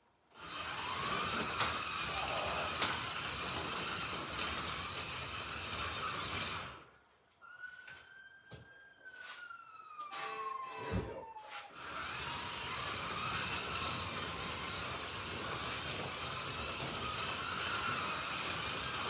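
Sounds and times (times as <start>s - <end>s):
slot car electric motors whining: 0.3s - 6.9s, 11.6s - 19.0s
cars rattling on plastic track: 0.4s - 6.9s, 11.8s - 19.0s.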